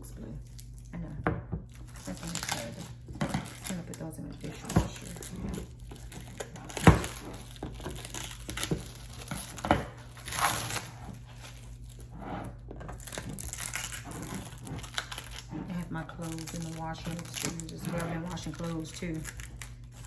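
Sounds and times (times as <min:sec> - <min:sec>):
packaging crinkling and rustling: 0:01.6 - 0:20.0.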